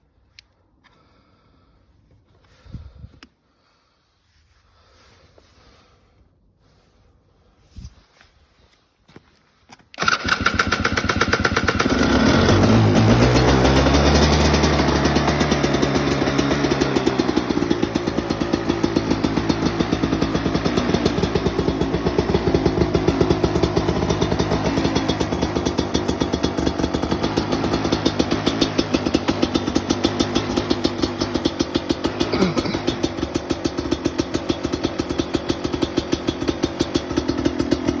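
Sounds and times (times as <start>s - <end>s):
two-stroke engine idling: 10.0s - 38.0s.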